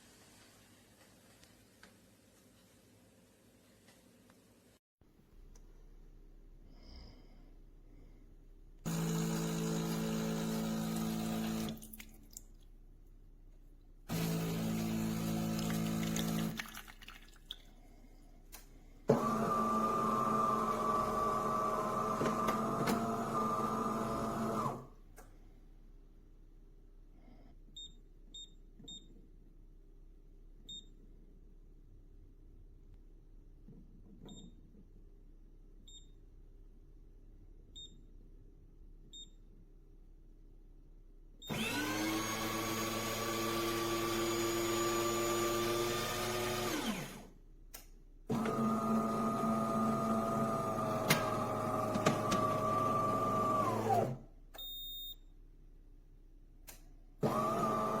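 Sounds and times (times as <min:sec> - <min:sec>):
coffee machine humming: 0:08.9 - 0:11.8, 0:14.1 - 0:16.6, 0:19.1 - 0:24.8, 0:48.3 - 0:54.2.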